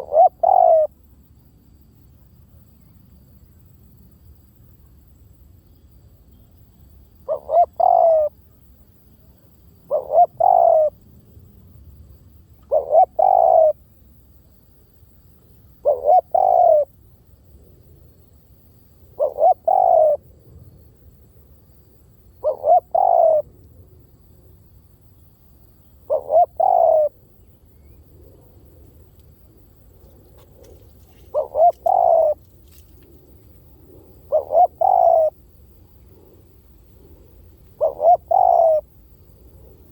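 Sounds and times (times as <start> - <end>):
dove cooing: 0.0 - 0.9, 7.2 - 8.4, 9.9 - 11.0, 12.6 - 13.8, 15.8 - 16.9, 19.1 - 20.2, 22.4 - 23.6, 26.0 - 27.2, 30.1 - 32.9, 33.5 - 39.9.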